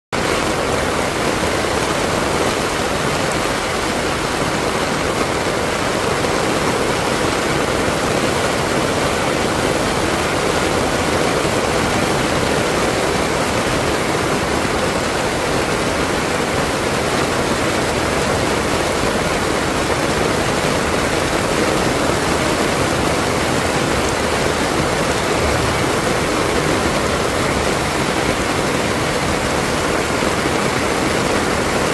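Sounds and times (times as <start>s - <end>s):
heavy rain pouring: 0.2s - 31.9s.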